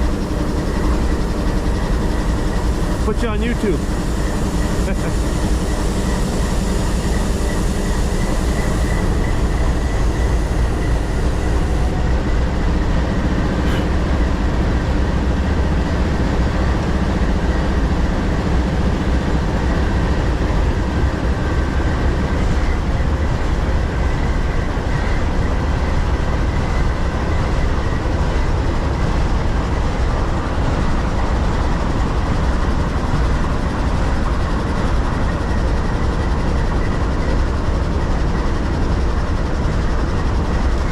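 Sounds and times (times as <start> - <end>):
faint steady tones: 0.0 - 28.2
train rumbling past: 0.0 - 40.9.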